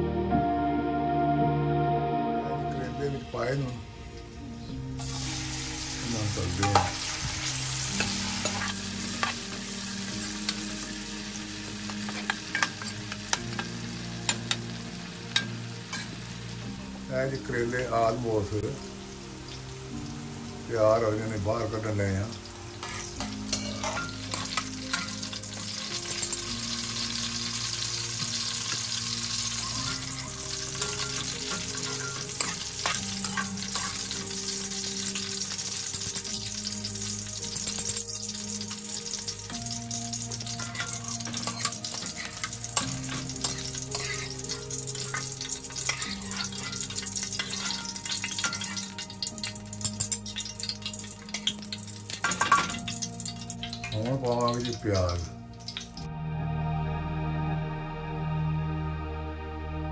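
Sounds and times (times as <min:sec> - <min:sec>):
utensils clinking and scraping a pan: 0:05.0 - 0:10.8, 0:11.8 - 0:14.7, 0:15.3 - 0:16.2, 0:21.0 - 0:56.0
vegetables frying in hot oil: 0:05.0 - 0:56.1.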